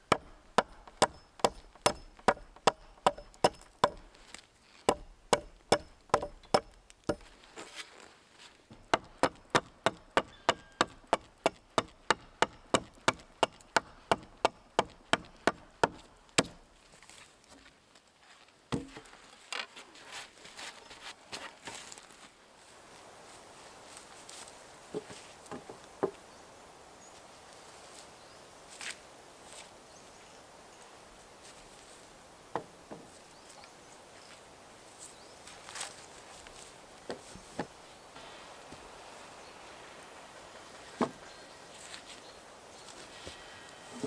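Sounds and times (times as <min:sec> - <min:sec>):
axe chopping wood: 0:00.1 - 0:04.1, 0:04.9 - 0:07.3, 0:08.7 - 0:16.6.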